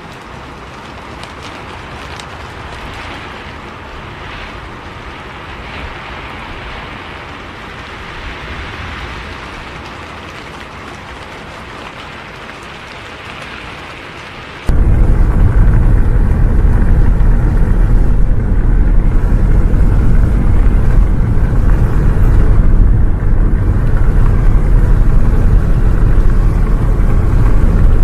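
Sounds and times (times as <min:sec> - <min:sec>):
rain hiss: 0:00.0 - 0:28.0
raindrops ticking on windows: 0:00.0 - 0:28.0
bus engine and road rumble: 0:14.4 - 0:28.0.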